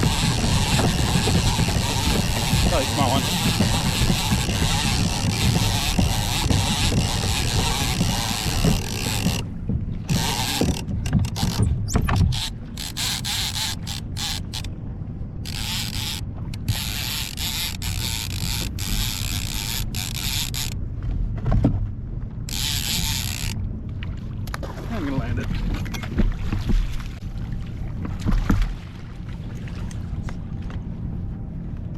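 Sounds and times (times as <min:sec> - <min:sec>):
fishing reel clicking: 0:00.0 - 0:09.5, 0:10.1 - 0:11.6, 0:12.2 - 0:14.7, 0:15.4 - 0:20.8, 0:22.5 - 0:23.6.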